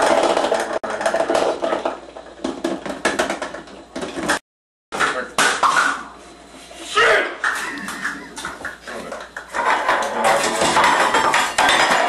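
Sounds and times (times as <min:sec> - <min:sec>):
kitchen utensils knocking and rattling: 0:00.0 - 0:04.4, 0:07.4 - 0:12.0.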